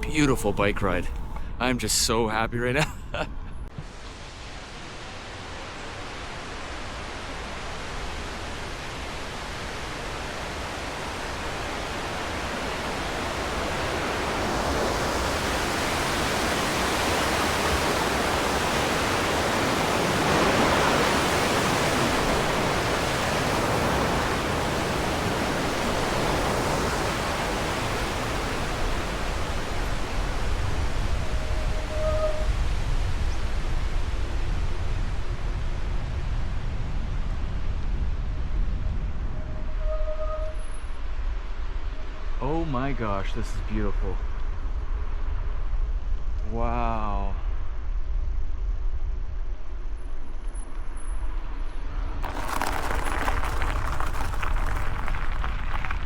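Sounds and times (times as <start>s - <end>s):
low buffeting rumble: 0.0s - 3.7s, 28.4s - 33.6s
wind on microphone: 9.0s - 40.6s.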